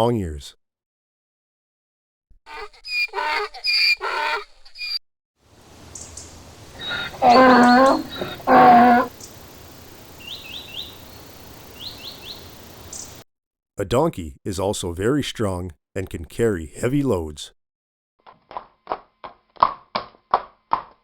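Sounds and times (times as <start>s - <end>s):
donkey braying: 2.5s - 5.0s, 6.6s - 9.4s
farmyard background: 2.5s - 5.0s, 5.7s - 13.2s
quick bird chirps: 5.9s - 13.2s.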